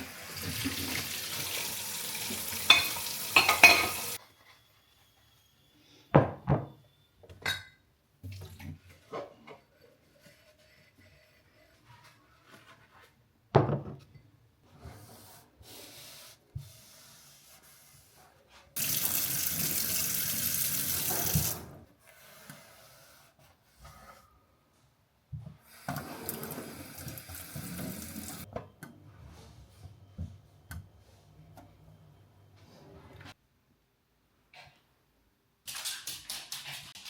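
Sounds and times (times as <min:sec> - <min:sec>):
tap running into sink: 0:20.8 - 0:21.6.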